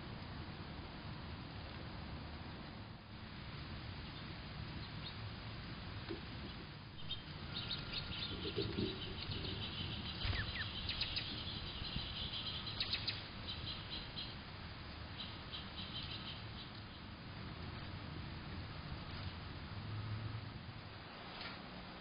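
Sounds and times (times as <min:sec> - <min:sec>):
small songbirds chirping: 0:03.9 - 0:17.9.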